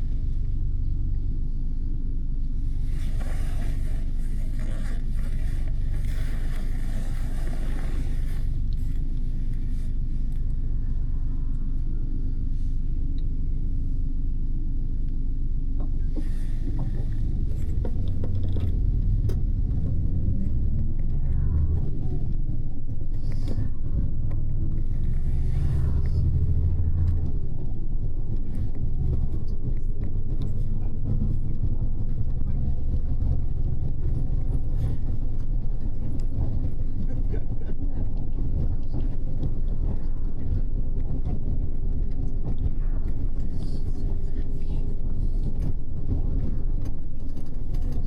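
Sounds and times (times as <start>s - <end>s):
bus engine and tyre rumble: 0.0s - 48.0s
small rattles and clicks: 15.8s - 48.0s.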